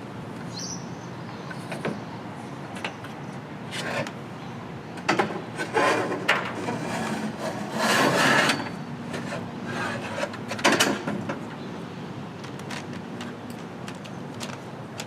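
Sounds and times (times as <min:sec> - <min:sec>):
scraping and rubbing: 0:05.6 - 0:10.4.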